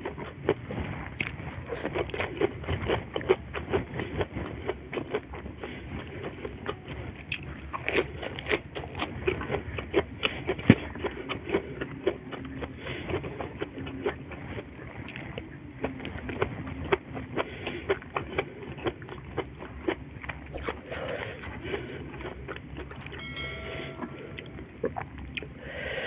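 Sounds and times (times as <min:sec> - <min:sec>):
close chewing: 0:00.0 - 0:23.2
wet mouth clicks: 0:21.6 - 0:23.2.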